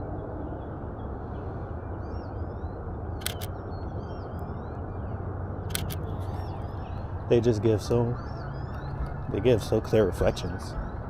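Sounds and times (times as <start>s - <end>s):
low outdoor noise: 0.0s - 11.0s
camera shutter clicks: 3.2s - 3.5s, 5.7s - 6.3s.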